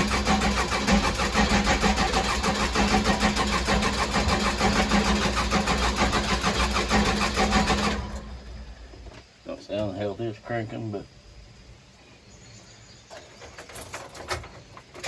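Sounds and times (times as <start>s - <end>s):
diesel engine cranking on starter: 0.0s - 9.2s.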